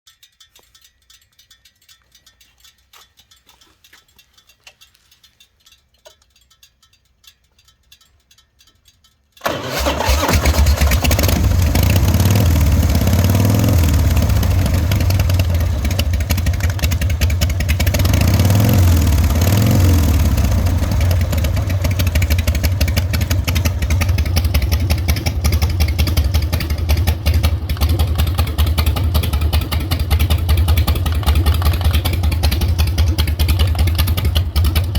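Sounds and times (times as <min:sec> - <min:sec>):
faint clicks: 0:00.1 - 0:09.5
motorcycle engine idling: 0:10.9 - 0:34.9.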